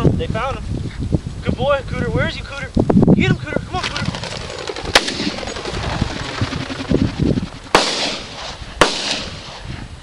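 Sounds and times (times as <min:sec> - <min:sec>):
shotgun shots with echo: 0:04.9 - 0:05.5, 0:07.7 - 0:09.6.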